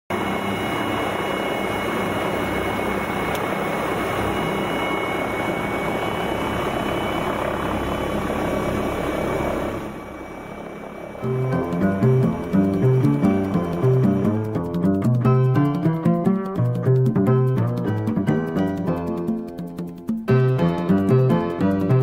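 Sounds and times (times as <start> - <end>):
helicopter rotor and engine: 0.1 - 16.0.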